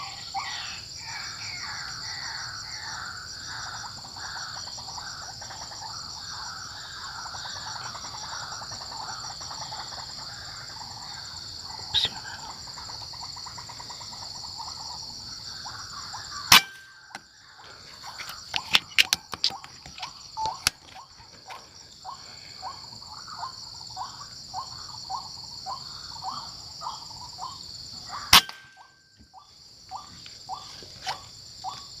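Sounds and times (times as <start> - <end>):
bird calling: 0.0 - 31.9
high insect drone: 0.0 - 32.0
sharp gunshots: 16.5 - 16.9, 28.3 - 28.8.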